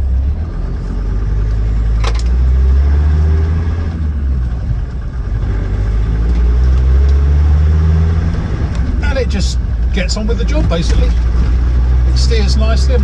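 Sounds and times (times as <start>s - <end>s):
diesel engine pulling away: 0.0s - 13.0s.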